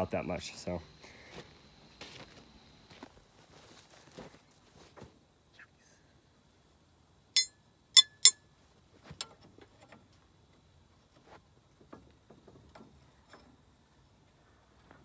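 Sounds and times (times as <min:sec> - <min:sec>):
sharp ringing clinks: 0:07.4 - 0:08.4.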